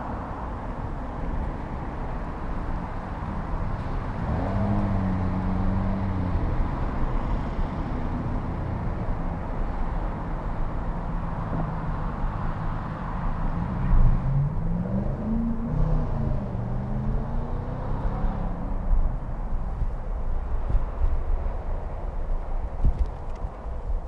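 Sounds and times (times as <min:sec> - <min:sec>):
car engine passing by: 0:00.0 - 0:18.8
low street and riding noise: 0:00.0 - 0:24.0.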